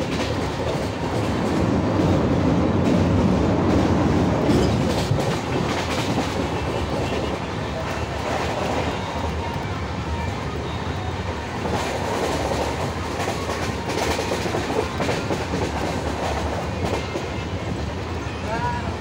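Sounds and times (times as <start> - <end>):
wheels clacking over rail joints: 0.0 - 9.7
train rumble: 0.0 - 19.0.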